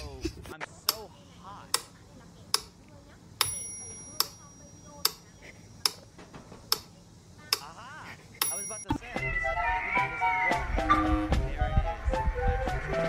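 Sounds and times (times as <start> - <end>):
metronome bell ringing: 3.4 - 5.0, 8.4 - 9.0
metronome ticking: 3.4 - 5.2.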